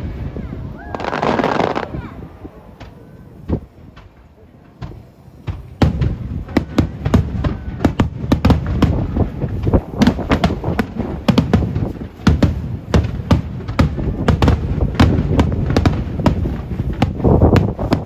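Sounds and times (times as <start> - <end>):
fireworks bursting: 0.0 - 18.0.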